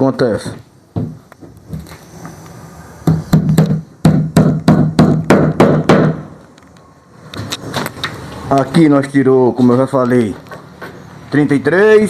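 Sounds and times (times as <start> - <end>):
hammer blows on wood: 3.0 - 6.4.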